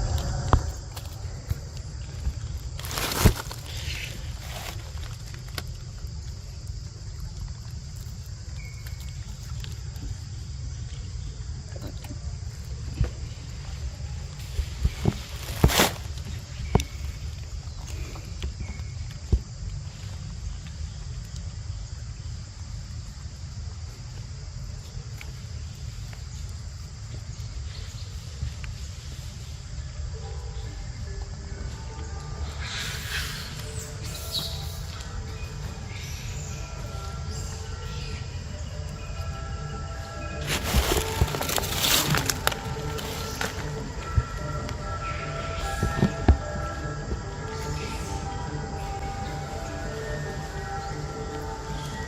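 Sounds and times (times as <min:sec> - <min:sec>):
low rumble: 0:00.0 - 0:19.0
high-pitched insect drone: 0:24.8 - 0:52.0.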